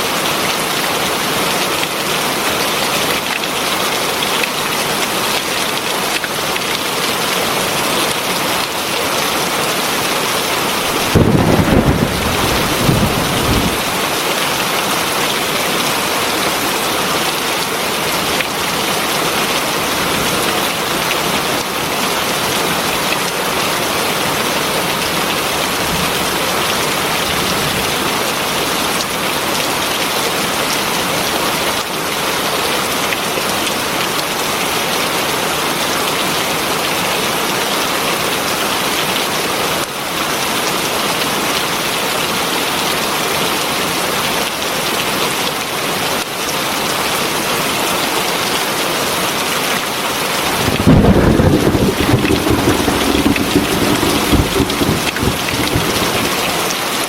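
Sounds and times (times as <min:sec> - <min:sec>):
heavy rain falling: 0:50.3 - 0:57.0.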